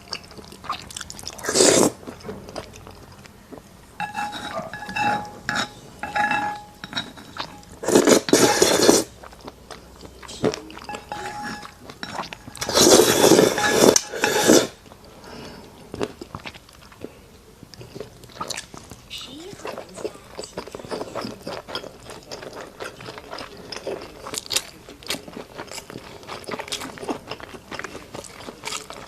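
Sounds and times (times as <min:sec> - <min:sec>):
person chewing: 0:00.0 - 0:29.0
utensils clinking on dishes: 0:04.0 - 0:09.1, 0:09.9 - 0:14.8.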